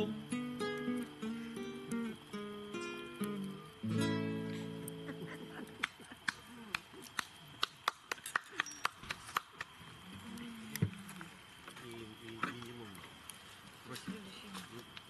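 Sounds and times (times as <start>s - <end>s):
acoustic guitar chord: 0.0s - 5.6s
campfire crackling: 0.0s - 15.0s.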